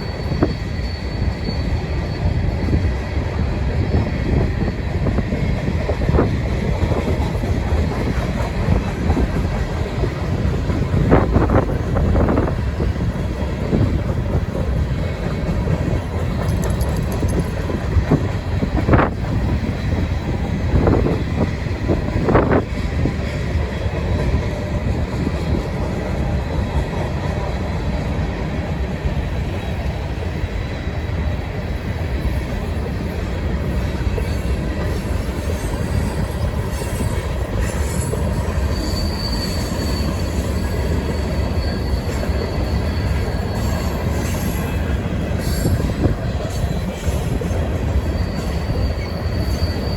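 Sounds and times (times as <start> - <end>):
high wheel squeal: 0.0 - 3.0, 34.1 - 49.9
train wheels rumbling on rail: 0.0 - 49.9.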